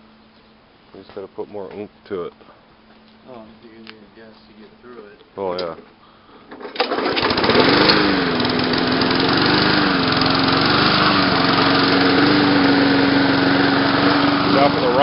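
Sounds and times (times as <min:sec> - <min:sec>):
starter cord pull: 0:06.5 - 0:08.0
lawnmower engine running: 0:06.5 - 0:15.0.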